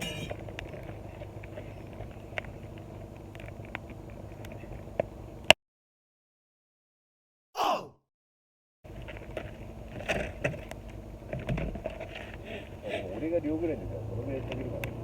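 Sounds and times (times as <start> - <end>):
campfire crackling and popping: 0.0 - 5.5.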